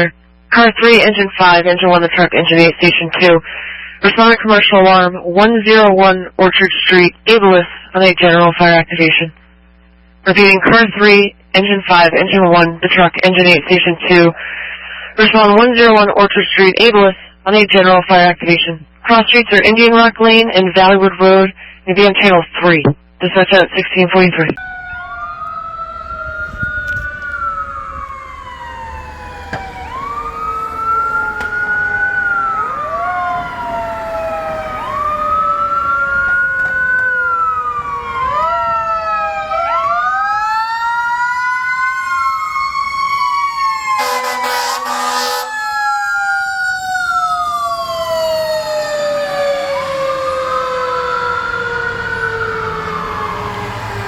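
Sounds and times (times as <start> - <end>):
fire sirens wailing: 24.6 - 54.0
air horn blast: 43.9 - 45.7.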